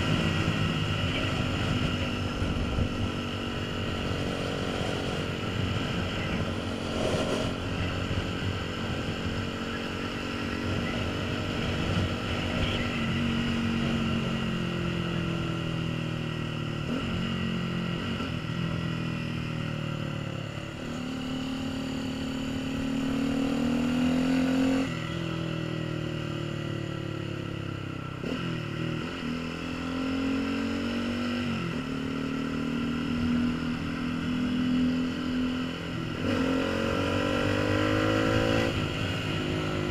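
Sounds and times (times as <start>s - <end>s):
wind noise on microphone: 0.0s - 9.6s
motorcycle engine accelerating: 0.0s - 39.9s.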